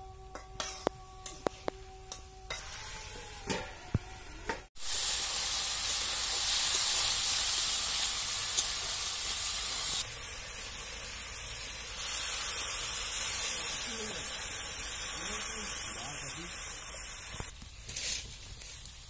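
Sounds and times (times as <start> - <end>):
food frying in a pan: 4.8 - 19.0.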